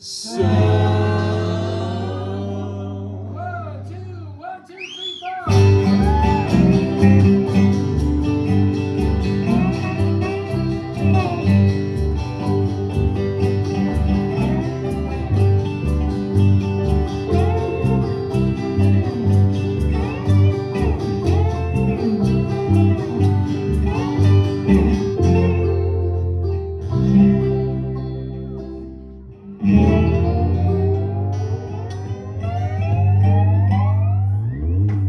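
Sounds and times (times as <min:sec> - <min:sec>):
bluegrass band playing: 0:00.0 - 0:03.1, 0:05.5 - 0:34.2
plucked guitar: 0:00.0 - 0:03.5, 0:05.5 - 0:35.0
bass line: 0:00.0 - 0:04.3, 0:05.5 - 0:35.0
sliding lead instrument: 0:05.5 - 0:28.8.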